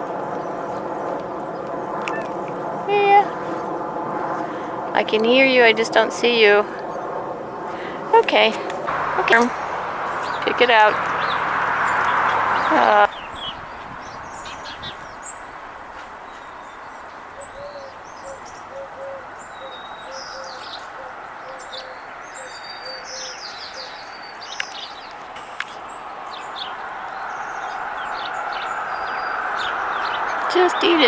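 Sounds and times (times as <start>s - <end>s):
steady background rush: 0.0s - 13.1s
small birds chirping: 0.0s - 31.0s.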